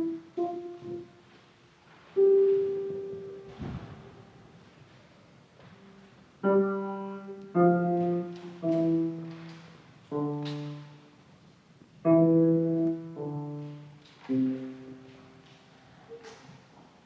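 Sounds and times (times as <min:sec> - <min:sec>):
piano chords ringing: 0:00.0 - 0:04.7, 0:05.6 - 0:11.3, 0:11.9 - 0:15.6.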